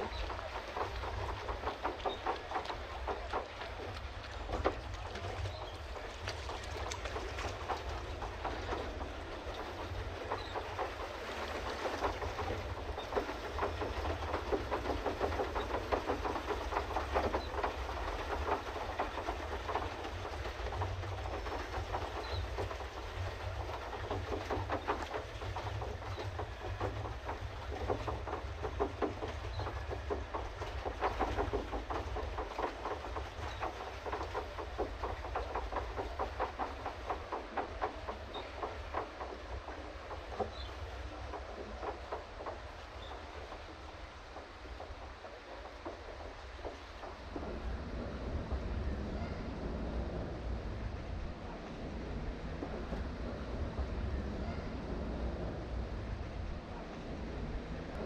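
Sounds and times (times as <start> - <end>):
paddle wheel churning water: 0.0 - 58.0
low rumble: 46.2 - 58.0.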